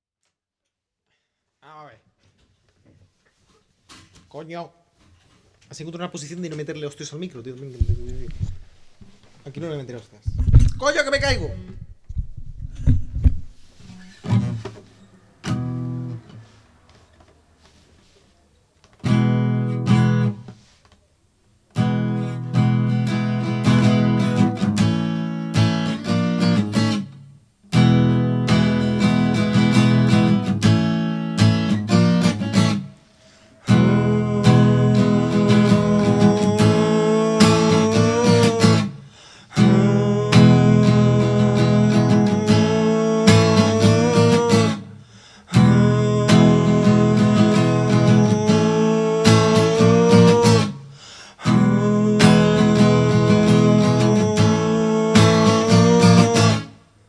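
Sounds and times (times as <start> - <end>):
acoustic guitar strumming: 13.8 - 16.6, 19.0 - 20.6, 21.7 - 56.9
person singing held notes: 32.6 - 44.9.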